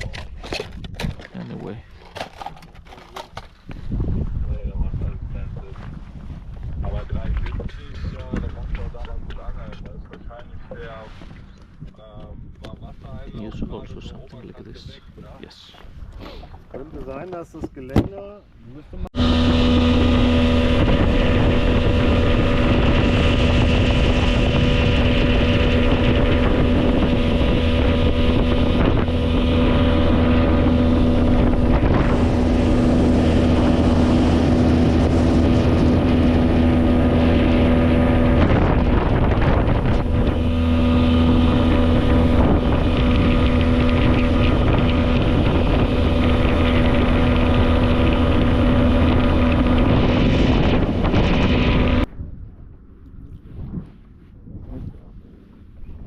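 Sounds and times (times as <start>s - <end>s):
outboard motor running: 0.0s - 4.5s, 19.1s - 53.4s
wind rushing over microphone: 3.6s - 16.7s, 18.9s - 56.0s.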